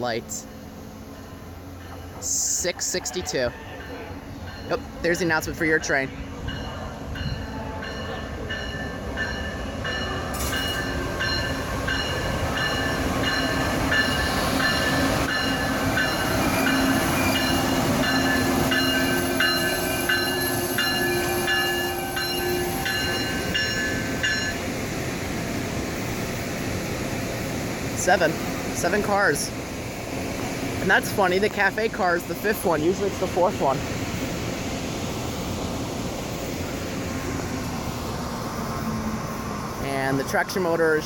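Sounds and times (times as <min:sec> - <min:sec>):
train rumbling on rails: 0:00.0 - 0:41.0
high ringing note: 0:07.2 - 0:24.6.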